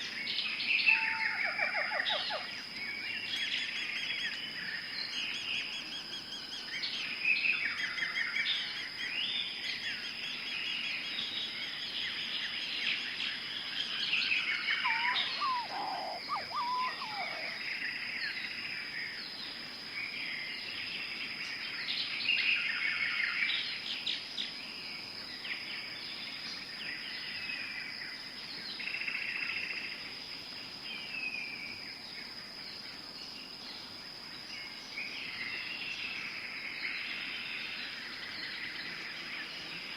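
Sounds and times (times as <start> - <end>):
birds chirping and trilling: 0.0 - 24.1
high-pitched insect drone: 14.5 - 17.8
lower sliding bird call: 14.8 - 17.6.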